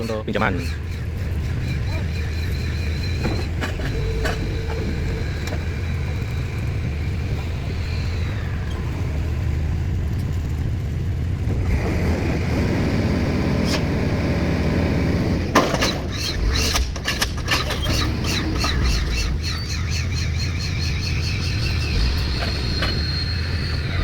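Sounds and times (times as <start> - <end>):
high squeals: 0.0 - 9.7, 15.6 - 24.0
engine rumbling: 0.0 - 24.0.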